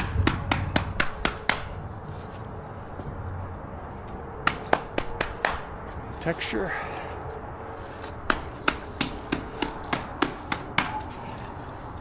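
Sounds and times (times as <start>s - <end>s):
stamp mats tamped on concrete: 0.0s - 2.5s, 7.8s - 12.0s.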